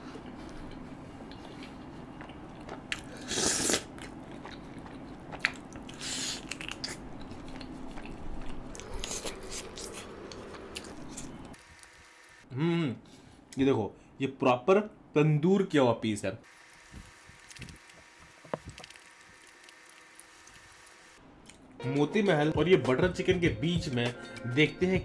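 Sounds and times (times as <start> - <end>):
biting and chewing food: 0.0 - 12.2, 16.6 - 21.7
wet mouth sounds: 1.3 - 10.1.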